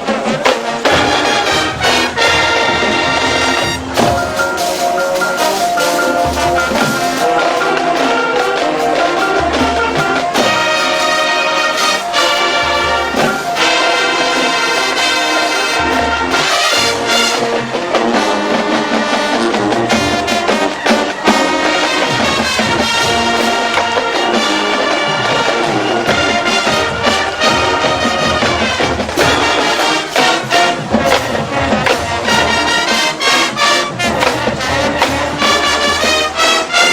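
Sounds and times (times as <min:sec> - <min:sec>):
brass playing a tune: 0:00.0 - 0:36.9
drum hits: 0:00.0 - 0:36.9.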